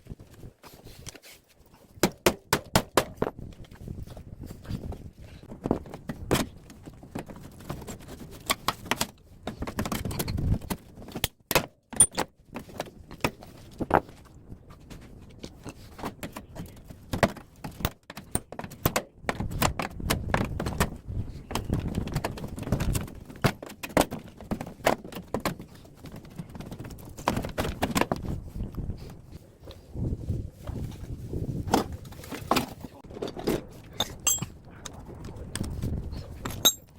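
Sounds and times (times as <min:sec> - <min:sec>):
metal parts clinking and clanking: 0:12.0 - 0:12.3, 0:33.2 - 0:34.6, 0:36.4 - 0:36.9.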